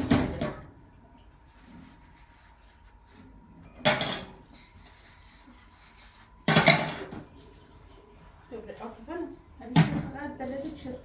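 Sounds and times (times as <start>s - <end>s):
pots and dishes clattering: 6.5s - 7.3s.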